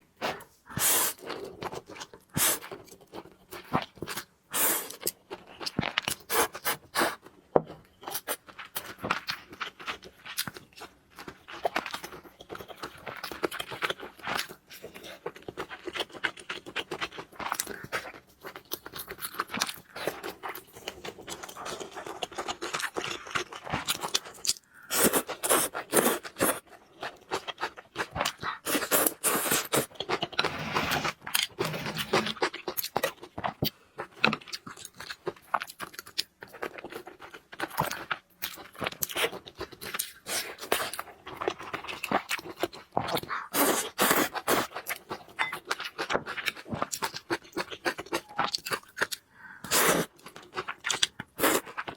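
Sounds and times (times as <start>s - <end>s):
food handling scrapes and crinkles: 17.1s - 34.3s.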